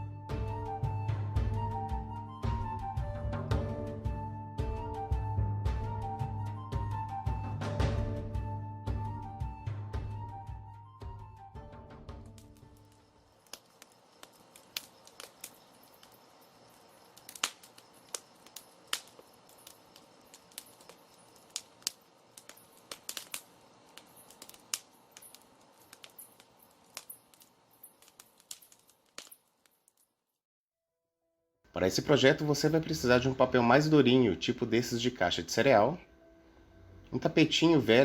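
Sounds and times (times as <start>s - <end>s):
faint room hiss: 12.4s - 30.3s, 31.7s - 38.0s.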